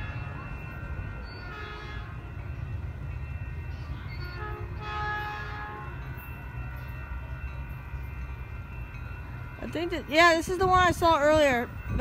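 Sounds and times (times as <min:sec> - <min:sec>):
train horn: 0:00.0 - 0:00.6, 0:01.3 - 0:02.4, 0:04.0 - 0:07.2
train rumbling by: 0:00.0 - 0:12.0.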